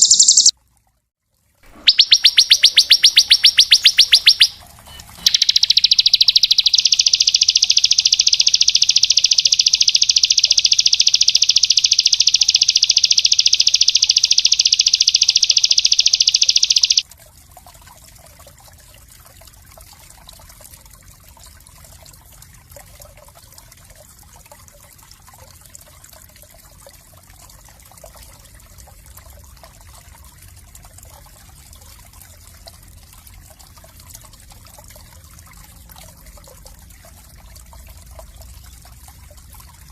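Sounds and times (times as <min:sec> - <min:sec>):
songbird fast high trill: 0:00.0 - 0:00.5, 0:01.7 - 0:17.0
faint trickle of water: 0:00.0 - 0:39.9.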